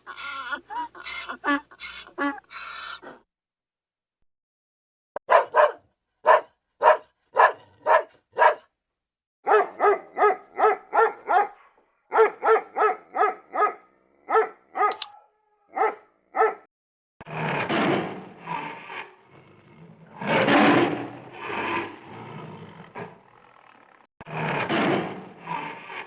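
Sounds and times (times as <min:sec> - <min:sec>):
dog barking: 0:05.3 - 0:08.7, 0:09.5 - 0:16.7.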